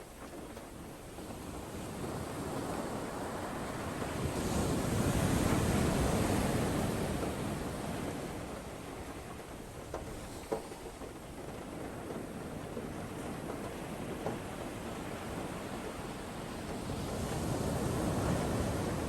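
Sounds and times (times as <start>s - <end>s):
storm wind: 0.0s - 19.0s.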